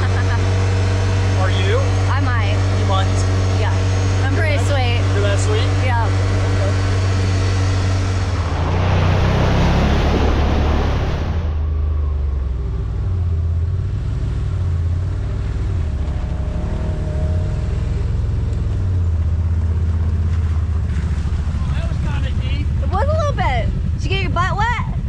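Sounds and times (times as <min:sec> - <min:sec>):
utility vehicle engine rumbling: 0:00.0 - 0:25.0
loud rush of noise: 0:05.0 - 0:12.0.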